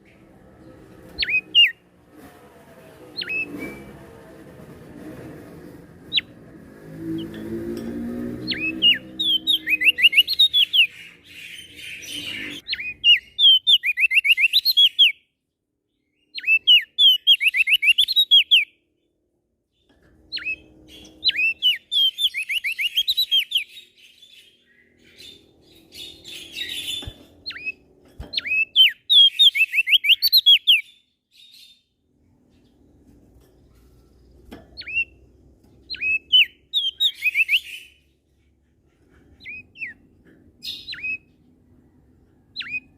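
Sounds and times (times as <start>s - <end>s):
bird singing whistled notes: 1.2s - 1.8s, 3.2s - 3.9s, 8.4s - 15.2s, 16.2s - 18.8s, 20.4s - 27.8s, 28.4s - 31.8s, 35.9s - 38.0s, 40.6s - 41.3s, 42.5s - 42.9s.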